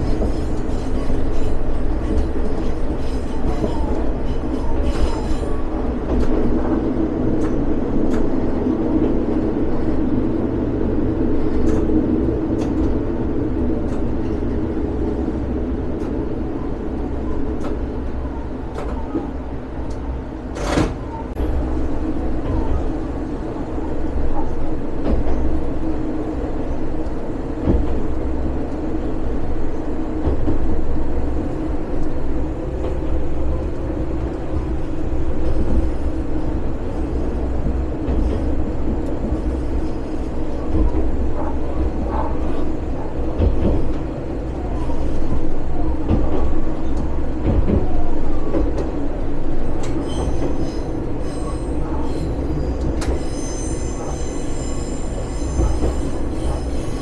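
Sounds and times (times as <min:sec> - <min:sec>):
rail clicks: 0:00.0 - 0:57.0
railcar engine and wheel rumble: 0:00.0 - 0:57.0
high-pitched wheel squeal: 0:50.0 - 0:57.0.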